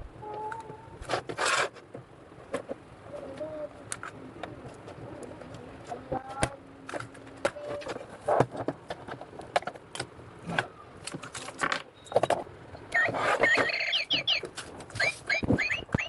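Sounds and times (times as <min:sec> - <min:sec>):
toy bird chirping: 0:12.9 - 0:16.0.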